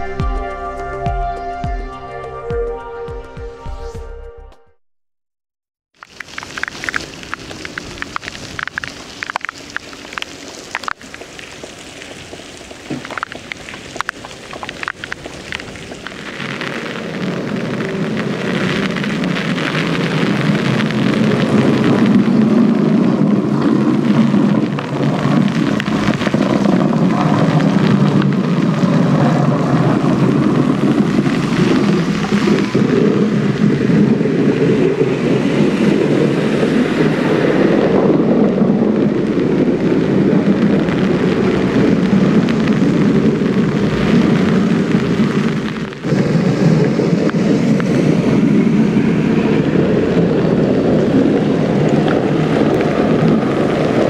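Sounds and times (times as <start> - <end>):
steady low noise: 0.0 - 4.7, 20.3 - 53.7
rain falling: 6.0 - 54.0.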